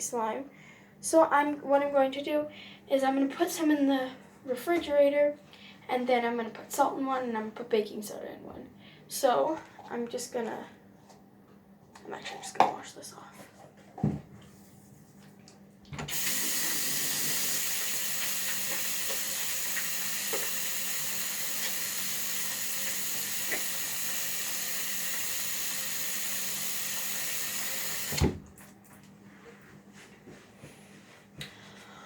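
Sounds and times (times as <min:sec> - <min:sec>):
water running from a tap: 0:16.1 - 0:28.3
tap shutting off with a knock: 0:21.4 - 0:24.1.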